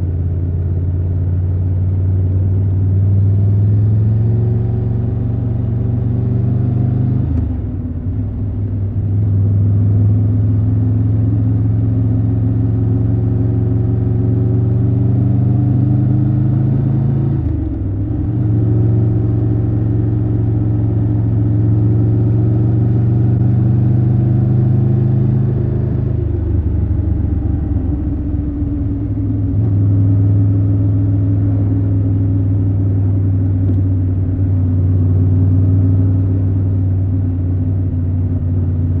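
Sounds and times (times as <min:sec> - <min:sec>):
motorcycle engine running: 0:17.4 - 0:39.0.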